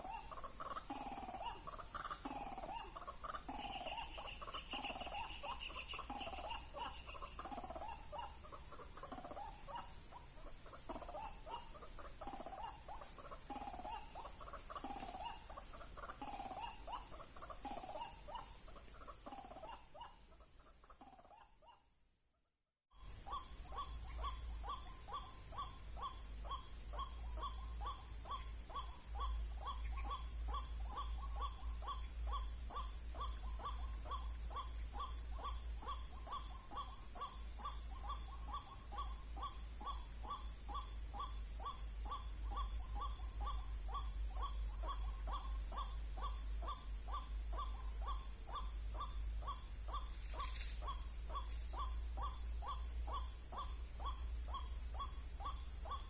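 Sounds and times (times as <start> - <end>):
steady high hiss: 0.0 - 20.9
waterhen calling: 0.0 - 21.4.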